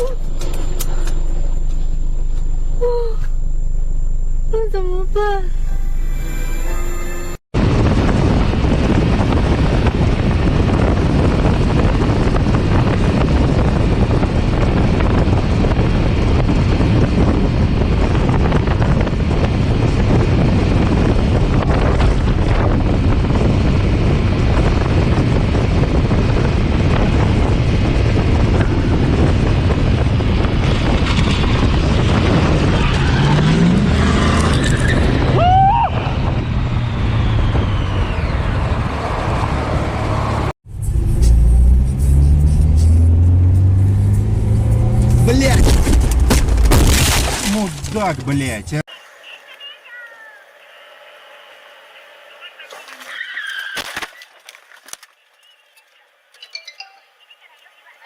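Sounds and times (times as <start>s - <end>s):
vehicle engine and road noise: 0.0s - 53.8s
high squeal: 5.4s - 7.4s, 34.5s - 38.9s.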